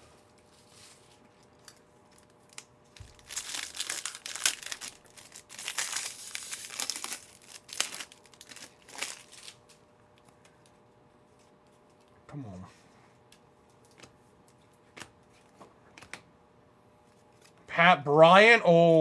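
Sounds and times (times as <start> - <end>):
wrapper crinkling and tearing: 2.1 - 9.8.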